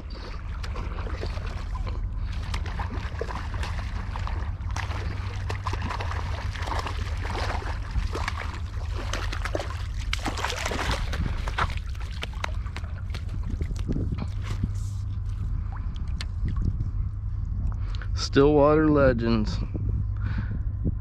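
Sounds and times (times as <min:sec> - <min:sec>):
water trickling and splashing: 0:00.0 - 0:16.8
wind rumble on microphone: 0:00.0 - 0:21.0.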